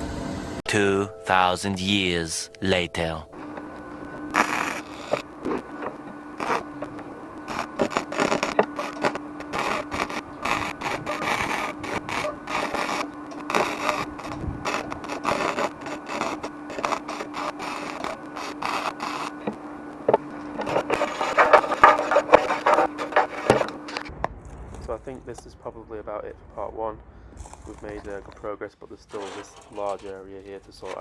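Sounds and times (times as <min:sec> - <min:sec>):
low hum: 0:00.0 - 0:31.0
metal scraping and crackling: 0:03.4 - 0:25.6, 0:27.4 - 0:31.0.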